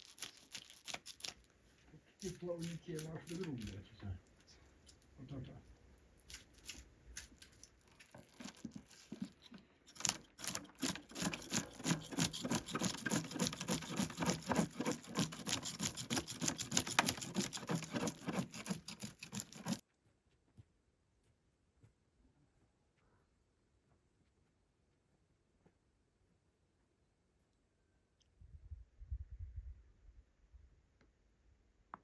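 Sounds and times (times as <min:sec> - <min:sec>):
knife scraping fish: 0:02.2 - 0:03.7, 0:06.3 - 0:19.8.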